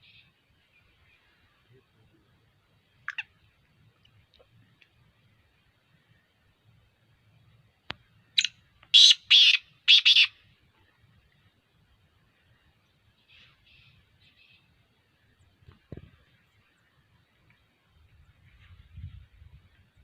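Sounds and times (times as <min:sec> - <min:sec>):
bird calling with harsh rasping notes: 0:02.9 - 0:03.5, 0:08.4 - 0:10.4, 0:13.2 - 0:14.8.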